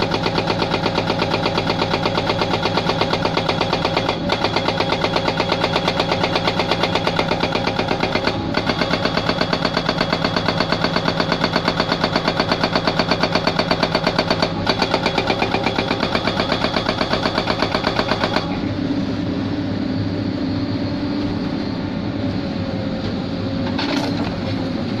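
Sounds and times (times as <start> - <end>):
hydraulic rock breaker hammering: 0.0 - 18.6
excavator engine running: 0.0 - 25.0.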